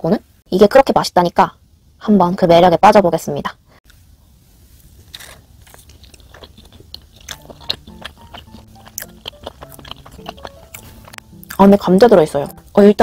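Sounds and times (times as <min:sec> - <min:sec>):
chewing a bagel: 0:05.1 - 0:11.7
faint background music: 0:06.4 - 0:13.0.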